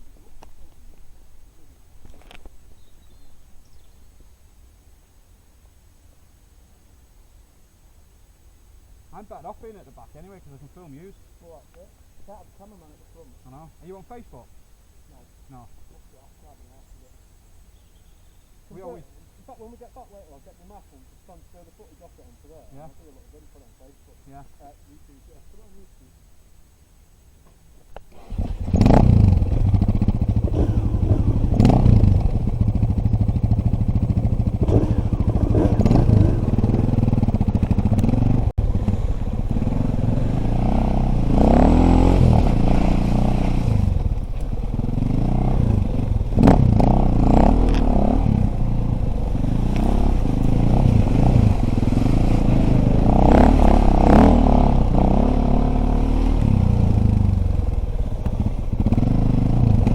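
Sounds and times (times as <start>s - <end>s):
rattling over ground: 0.0s - 3.9s, 27.4s - 59.9s
dirt bike engine revving: 28.1s - 59.9s.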